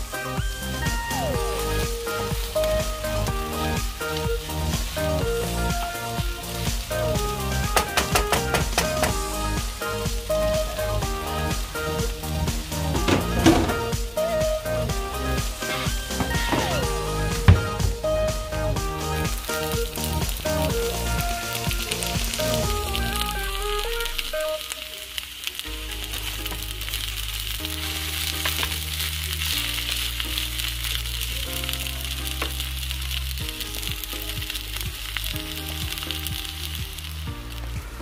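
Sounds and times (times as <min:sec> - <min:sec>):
background music: 0:00.0 - 0:38.0
rice sizzling in a pan: 0:23.2 - 0:38.0.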